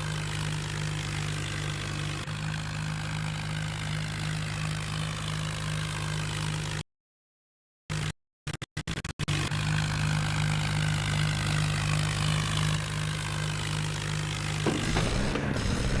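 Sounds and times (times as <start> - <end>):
tractor engine running: 0.0 - 4.6, 9.8 - 16.0.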